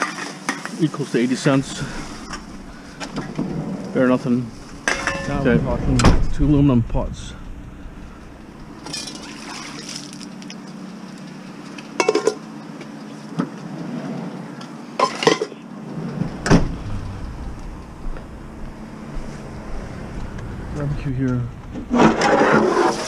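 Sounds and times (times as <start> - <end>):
aluminum pots clanking: 4.7 - 5.5, 12.0 - 12.4.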